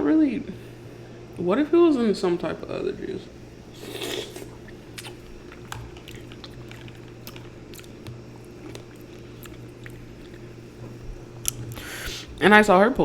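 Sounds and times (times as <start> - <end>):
low steady hum: 0.0 - 13.0
chewing mouth sounds: 3.8 - 12.3.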